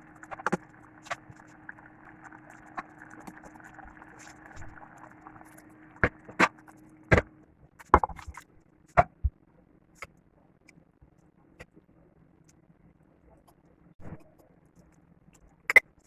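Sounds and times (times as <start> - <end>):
steady hum: 0.0 - 7.5.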